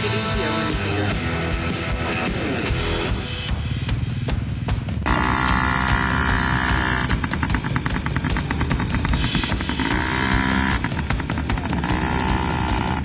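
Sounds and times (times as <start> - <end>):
dirt bike engine putter: 5.0 - 13.0.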